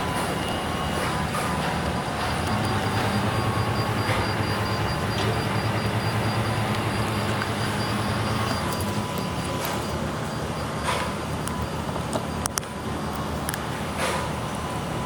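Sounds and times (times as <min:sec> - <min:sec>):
faint high whine: 0:00.0 - 0:13.1
bus diesel engine idling: 0:00.0 - 0:15.0.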